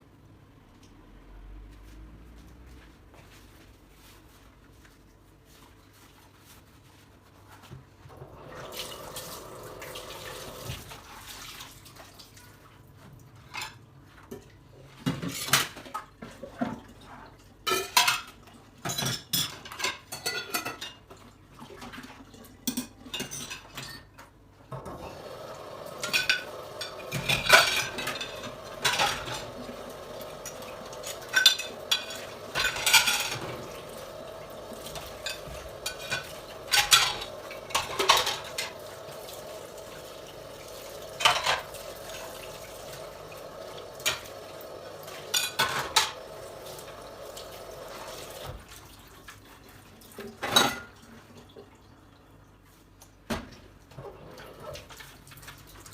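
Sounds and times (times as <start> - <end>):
water running: 8.1 - 12.7, 24.7 - 52.2
dishes and cutlery clinking: 17.6 - 21.2, 22.6 - 24.2, 25.9 - 39.8, 40.4 - 42.0, 42.9 - 48.0.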